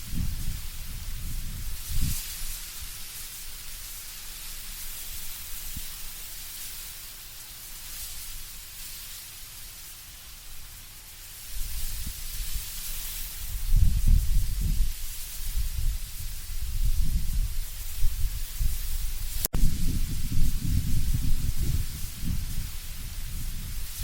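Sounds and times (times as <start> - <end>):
low gusty wind rumble: 0.0 - 3.0, 11.5 - 24.0
leaves rustling in wind: 0.0 - 24.0.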